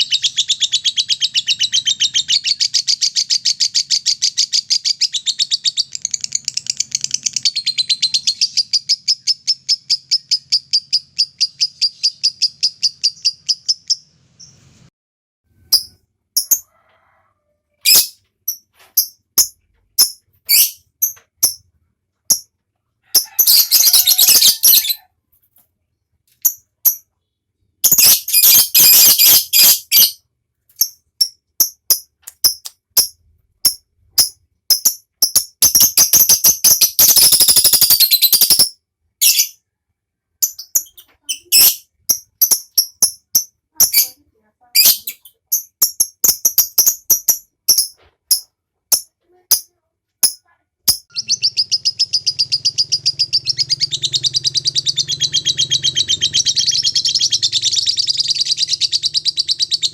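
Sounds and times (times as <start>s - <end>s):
lovebird chirping: 0.0s - 14.9s, 15.6s - 16.6s, 17.8s - 21.7s, 22.3s - 22.5s, 23.1s - 25.0s, 26.4s - 39.7s, 40.4s - 59.9s
bird rattling trills: 51.1s - 59.9s.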